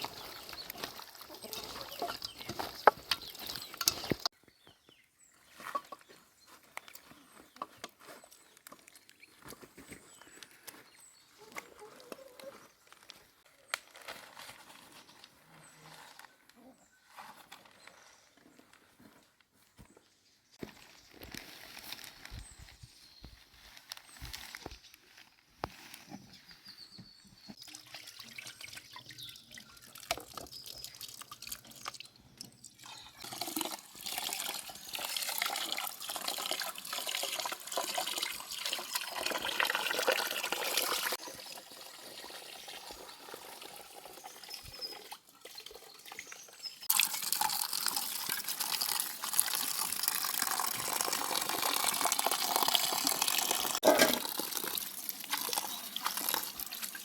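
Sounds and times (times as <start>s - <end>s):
water running and splashing: 27.6s - 32.1s, 33.0s - 57.0s
water dripping: 27.6s - 57.0s.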